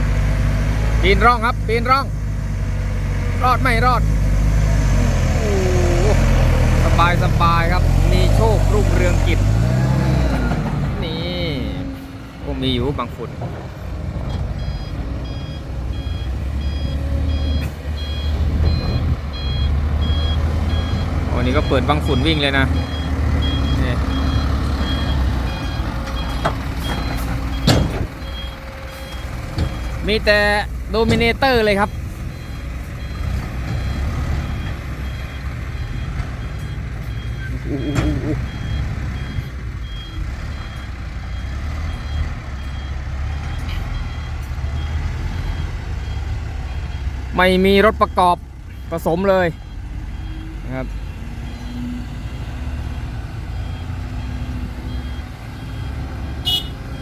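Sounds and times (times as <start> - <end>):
truck engine running: 0.0 - 57.0
reversing alarm beeping: 14.2 - 57.0.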